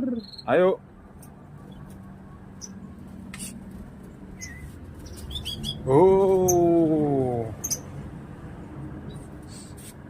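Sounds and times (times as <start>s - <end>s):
sparrow chirping: 0.0s - 0.7s, 1.6s - 8.0s.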